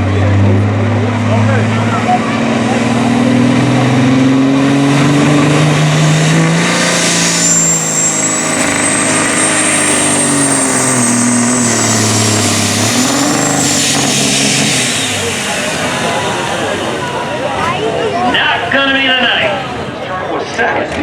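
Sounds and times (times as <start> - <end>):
diesel truck engine under load: 0.0 - 21.0
high whistle: 6.8 - 19.9.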